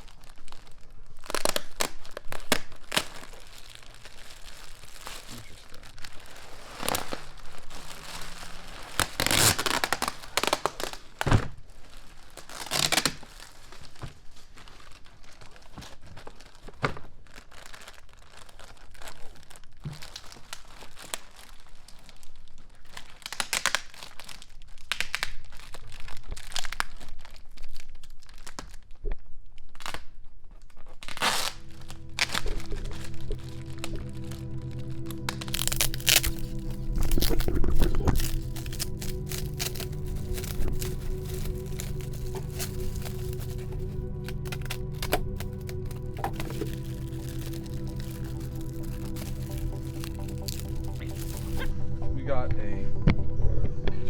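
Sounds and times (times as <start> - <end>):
packing material tearing and crumpling: 0.0 - 51.7
music: 31.3 - 54.0.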